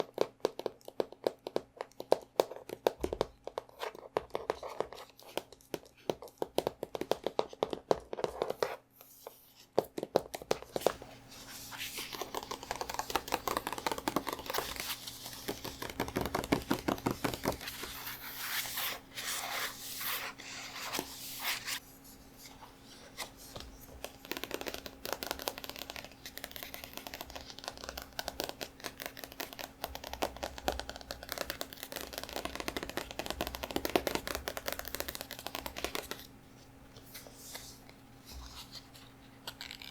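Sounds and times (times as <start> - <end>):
hands tapping on a book: 0.0 - 8.8, 9.8 - 11.1, 11.7 - 18.2, 23.5 - 36.3.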